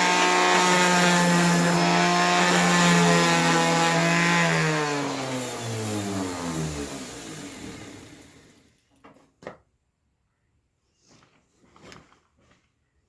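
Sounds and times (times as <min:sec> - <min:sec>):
power tool motor spinning down: 0:00.0 - 0:08.7.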